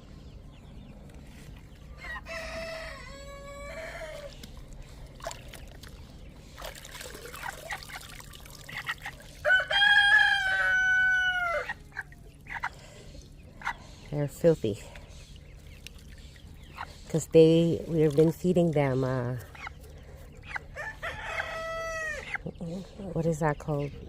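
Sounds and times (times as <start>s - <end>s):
rooster crowing: 2.0s - 4.3s, 9.4s - 11.8s, 20.8s - 22.2s.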